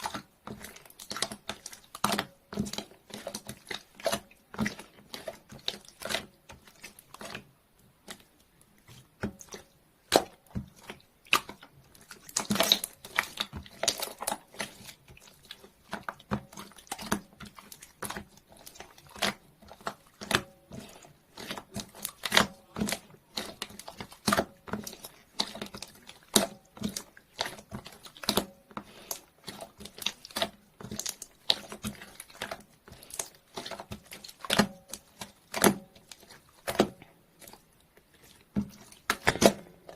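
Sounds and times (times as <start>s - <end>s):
slime squishing and popping: 9.3s - 37.6s.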